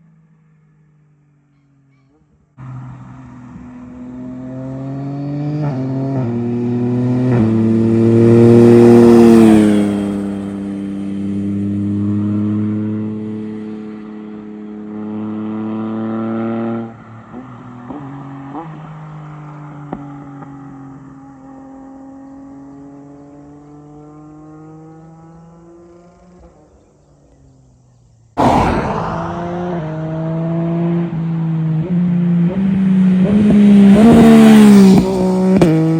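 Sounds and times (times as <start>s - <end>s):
motorcycle engine accelerating: 28.4s - 31.0s.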